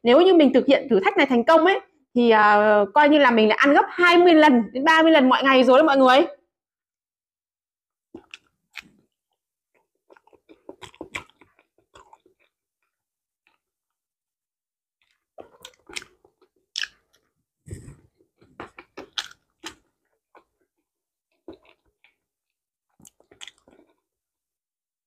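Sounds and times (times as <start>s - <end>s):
chewing with wet lip-smacking: 9.7s - 13.6s, 15.0s - 17.3s, 18.4s - 22.2s, 22.9s - 24.0s.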